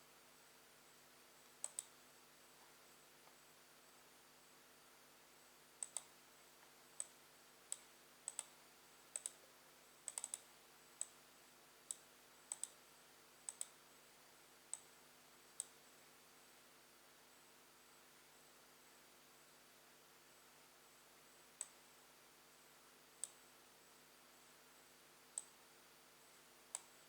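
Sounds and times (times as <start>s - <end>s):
faint steady hum: 0.0s - 27.0s
computer mouse clicks: 1.6s - 2.0s, 5.8s - 6.1s, 7.0s - 9.4s, 10.0s - 11.2s, 11.9s - 12.8s, 13.4s - 13.8s, 15.6s - 15.8s, 21.6s - 21.8s, 23.2s - 23.4s, 25.4s - 25.6s, 26.7s - 27.0s.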